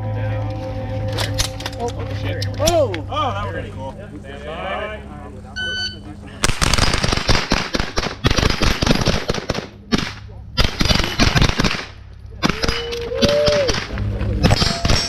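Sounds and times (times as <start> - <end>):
ringing tone: 0.0 - 2.9, 5.5 - 6.1
rapid rifle fire: 6.4 - 15.0.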